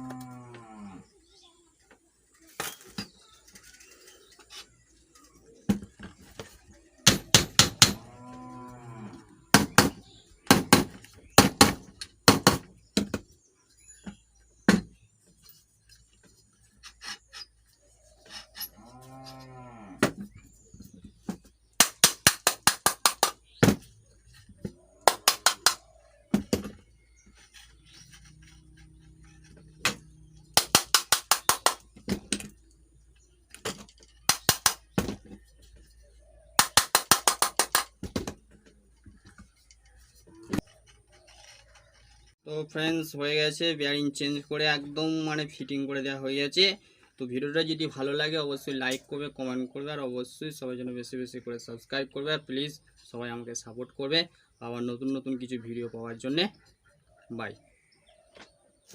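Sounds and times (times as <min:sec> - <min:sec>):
cow mooing: 0:00.0 - 0:01.1, 0:08.0 - 0:09.5, 0:18.8 - 0:20.0
rapid sharp tapping: 0:30.6 - 0:31.8, 0:36.6 - 0:38.0.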